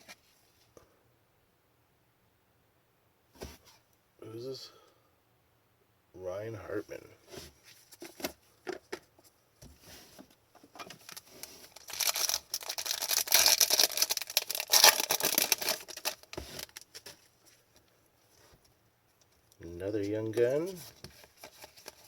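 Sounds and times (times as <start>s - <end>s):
packaging rustling and crinkling: 10.8s - 17.8s, 20.2s - 22.0s.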